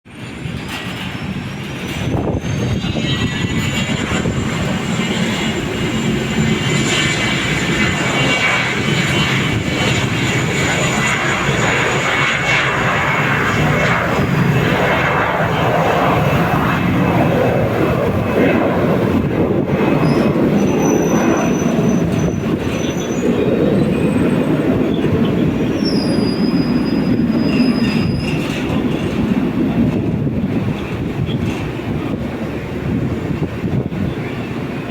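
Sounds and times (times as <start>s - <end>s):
jet engines at takeoff power: 0.0s - 34.9s.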